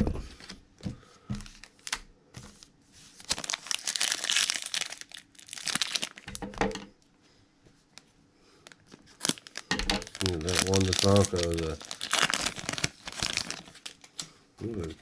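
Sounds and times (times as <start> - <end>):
foil wrapper tearing and crinkling: 1.5 - 2.0, 3.2 - 6.4, 8.7 - 15.0.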